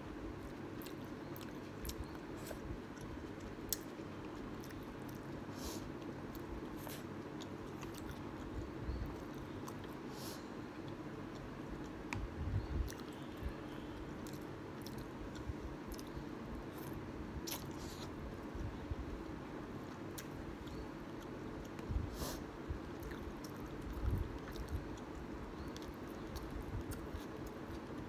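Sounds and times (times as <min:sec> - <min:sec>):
faint steady hum: 0:00.0 - 0:28.0
person chewing and biting: 0:16.7 - 0:18.1.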